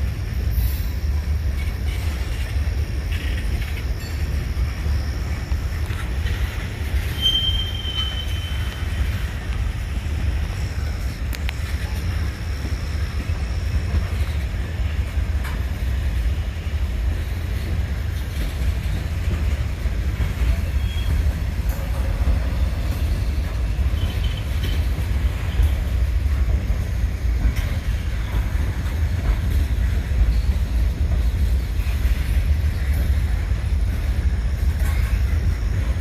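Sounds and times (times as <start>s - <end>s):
freight train wheels rumbling: 0.0s - 36.0s
high wheel squeal: 6.2s - 9.3s, 20.6s - 25.9s.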